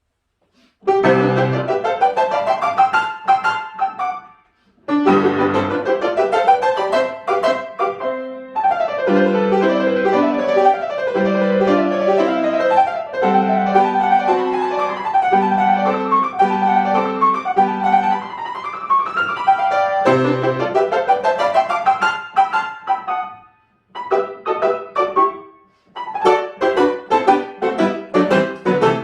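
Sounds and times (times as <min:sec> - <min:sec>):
solo piano melody: 0:00.8 - 0:29.0.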